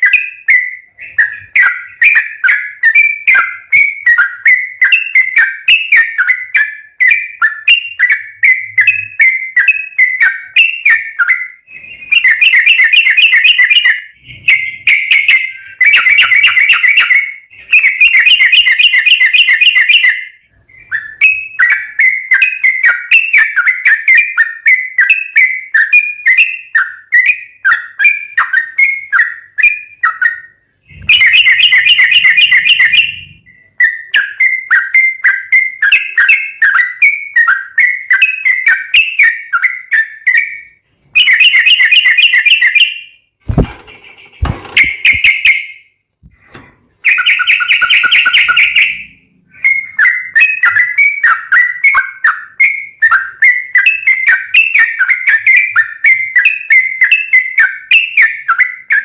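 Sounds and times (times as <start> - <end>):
bird whistled song: 0.0 - 59.0
bird rapid chatter: 11.8 - 20.1, 30.9 - 33.4, 43.5 - 45.7, 47.0 - 49.1
low thumps: 43.4 - 45.3.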